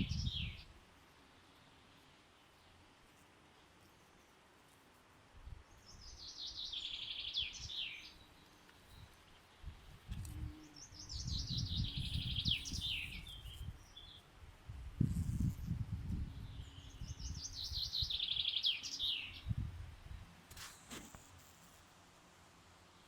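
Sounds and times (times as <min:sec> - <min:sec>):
songbird trilling: 0:10.6 - 0:14.2, 0:16.5 - 0:19.5.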